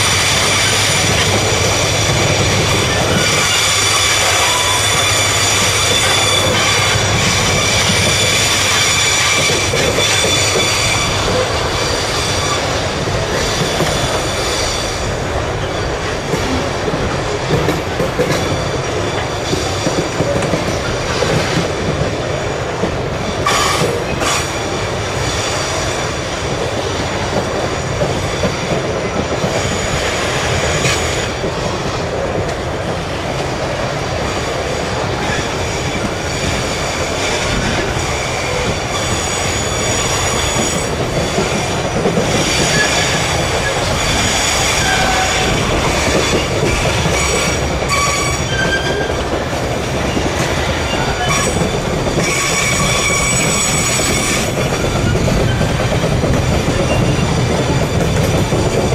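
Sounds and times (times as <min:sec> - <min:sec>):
freight train rumbling: 0:00.0 - 0:58.9
wheel squeal: 0:02.8 - 0:12.8, 0:35.2 - 0:49.2, 0:50.1 - 0:55.8, 0:56.7 - 0:58.4.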